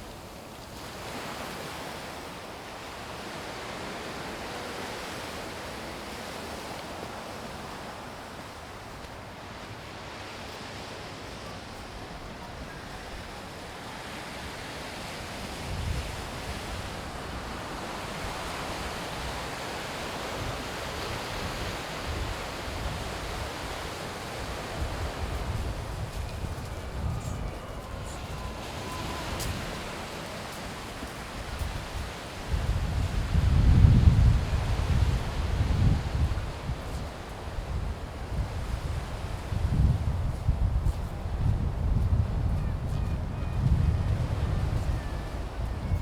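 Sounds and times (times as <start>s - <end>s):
sea waves washing onto beach: 0.0s - 41.4s
wind buffeting microphone: 14.4s - 46.0s.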